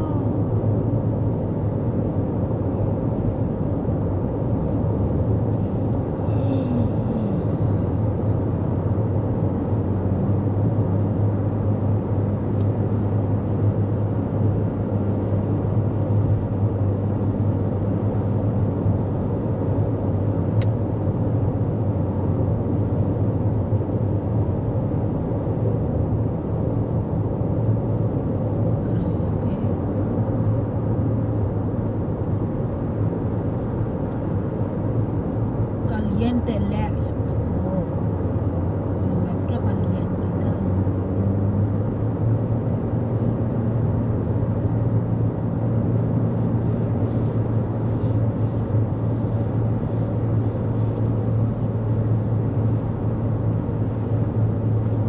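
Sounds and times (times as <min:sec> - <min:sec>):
car road and tyre noise: 0:00.0 - 0:55.0.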